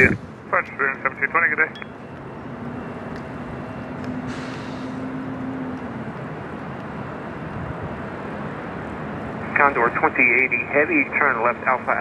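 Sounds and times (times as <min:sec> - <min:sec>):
jet airliner engine rumble: 0:00.0 - 0:12.0.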